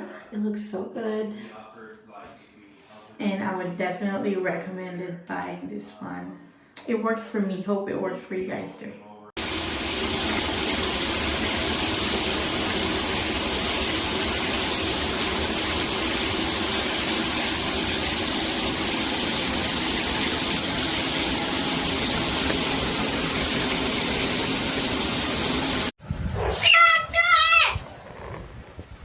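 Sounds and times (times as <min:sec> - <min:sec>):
shower head spraying water: 0:09.4 - 0:26.0.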